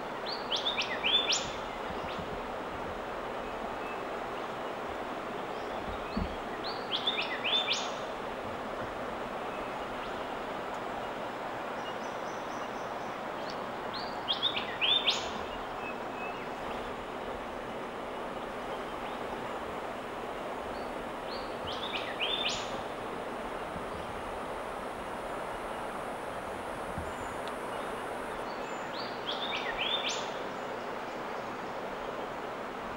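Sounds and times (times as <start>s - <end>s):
bird calling: 0.0s - 2.3s, 11.8s - 24.2s
outdoor ambient hiss: 0.0s - 32.9s.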